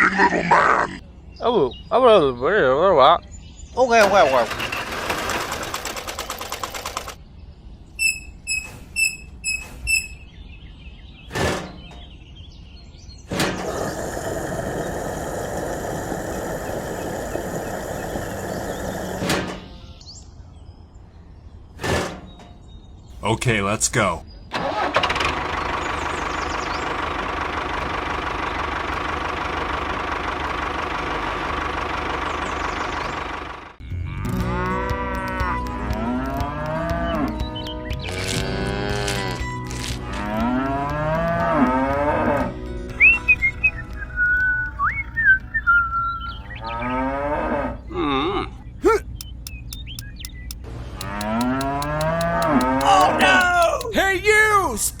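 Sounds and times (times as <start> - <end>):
tractor engine running: 4.0 - 7.2, 24.6 - 44.0, 48.8 - 55.0
cows mooing: 38.1 - 42.5, 51.0 - 53.8.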